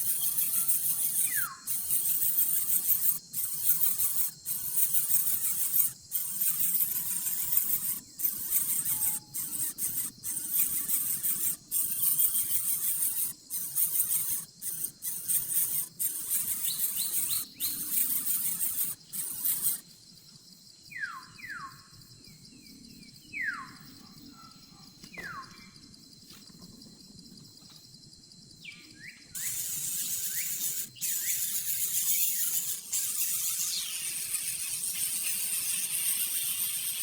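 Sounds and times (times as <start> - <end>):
nestling birds squealing: 29.4 - 36.4.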